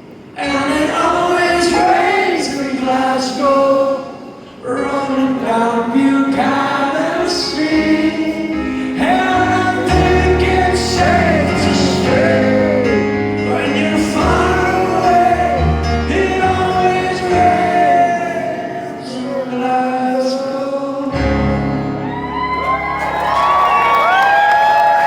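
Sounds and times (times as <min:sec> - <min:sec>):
many voices singing: 0:00.4 - 0:21.8
crowd cheering and whooping: 0:21.9 - 0:25.0.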